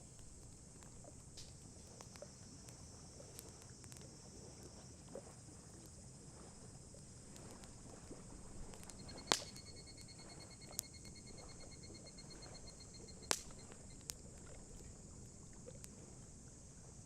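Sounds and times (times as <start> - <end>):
campfire crackling: 0.0 - 17.0
faint high hiss: 0.0 - 17.0
sharp fire pop: 8.8 - 9.8, 13.2 - 14.2.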